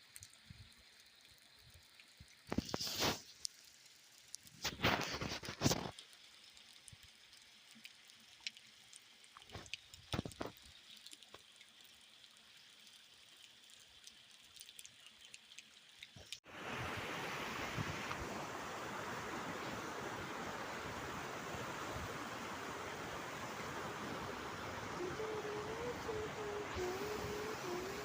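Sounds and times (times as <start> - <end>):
raindrops tapping: 9.4 - 10.6.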